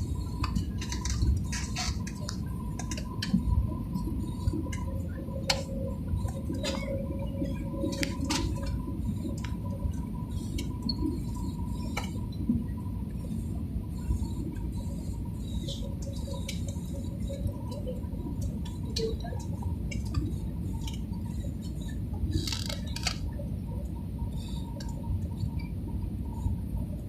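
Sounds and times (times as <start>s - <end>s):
airliner cabin rumble: 0.0s - 27.0s
faint steady hum: 0.0s - 27.0s
small clicks and rattles: 0.3s - 3.4s, 15.7s - 23.4s.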